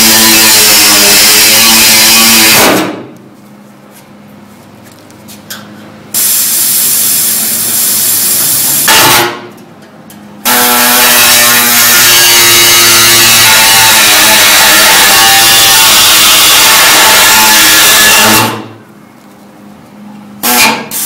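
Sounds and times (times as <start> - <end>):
power tool cutting sheet metal: 0.0 - 3.0, 6.2 - 9.4, 10.4 - 18.8, 20.4 - 21.0.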